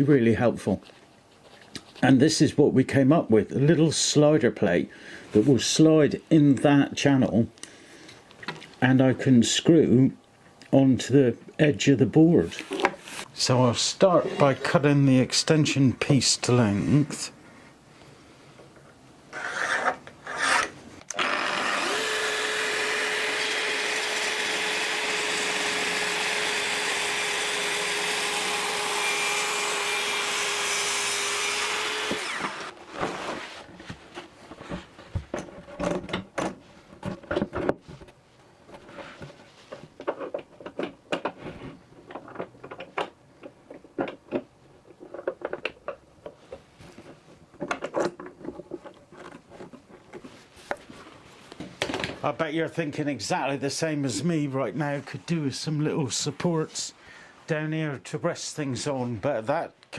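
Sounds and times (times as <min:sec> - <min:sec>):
power saw cutting wood: 0:19.3 - 0:32.8.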